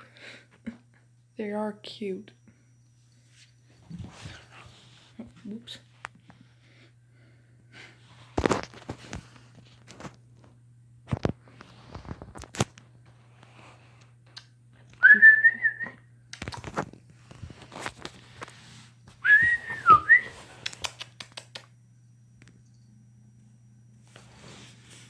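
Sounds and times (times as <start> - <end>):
person whistling: 15.0 - 16.0, 19.2 - 20.4.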